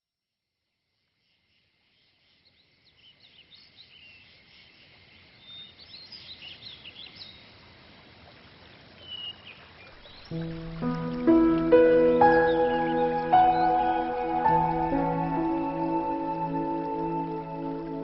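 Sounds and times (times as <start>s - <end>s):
birds chirping: 9.0s - 18.0s.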